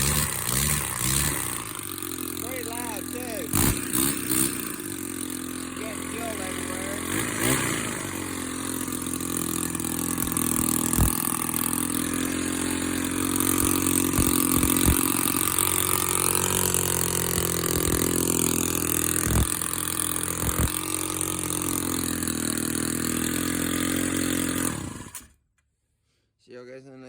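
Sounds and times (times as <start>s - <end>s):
small engine running: 0.0s - 25.4s
engine pops: 10.1s - 11.6s, 13.5s - 16.0s.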